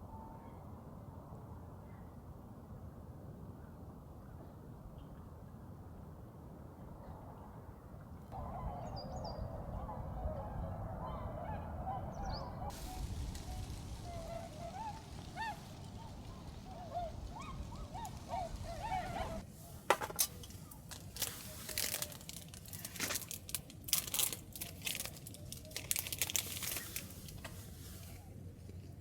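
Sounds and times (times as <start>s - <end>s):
swans honking: 8.4s - 19.5s.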